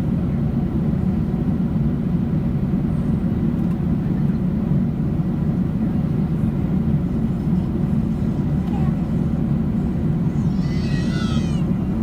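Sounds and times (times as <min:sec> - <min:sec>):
airliner cabin engine drone: 0:00.0 - 0:12.0.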